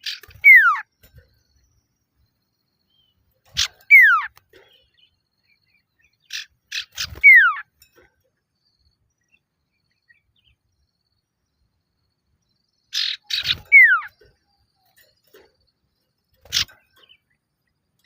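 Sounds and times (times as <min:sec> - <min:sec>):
bird rasping chatter: 0:00.0 - 0:01.3, 0:03.4 - 0:04.9, 0:06.1 - 0:07.9, 0:12.9 - 0:15.6, 0:16.3 - 0:17.2.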